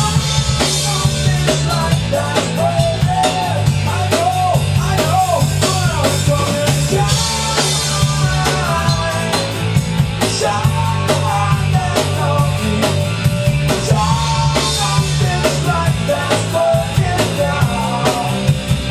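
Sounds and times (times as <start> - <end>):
bending lead melody: 0.0 - 18.9
drum kit beat: 0.0 - 18.9
heavy bass: 0.0 - 18.9.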